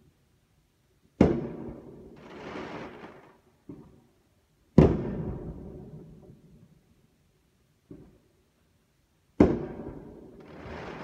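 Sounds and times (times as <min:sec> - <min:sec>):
fireworks bangs with echo: 0:01.2 - 0:03.9, 0:04.7 - 0:06.0, 0:09.4 - 0:11.0
firework hiss: 0:02.2 - 0:03.4, 0:10.4 - 0:11.0.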